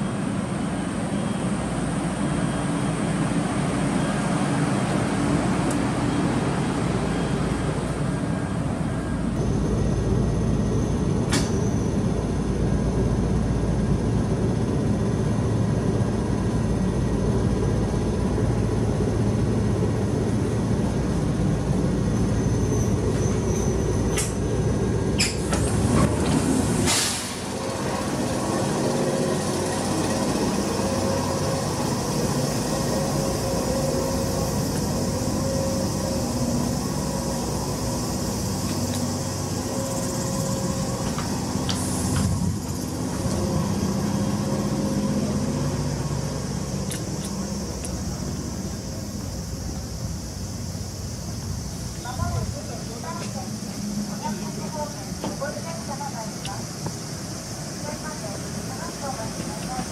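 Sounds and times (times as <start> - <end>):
electric train rumble and hum: 0.0 - 59.9
air brakes hissing: 26.6 - 27.8, 32.0 - 43.6.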